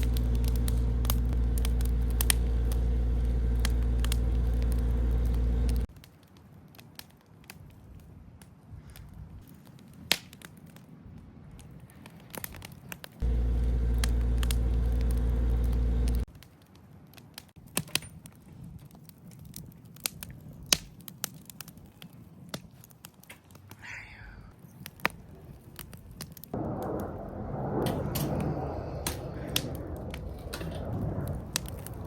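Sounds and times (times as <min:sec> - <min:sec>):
loud steady low hum: 0:00.0 - 0:05.9, 0:13.2 - 0:16.3
wood fire crackling: 0:00.0 - 0:32.0.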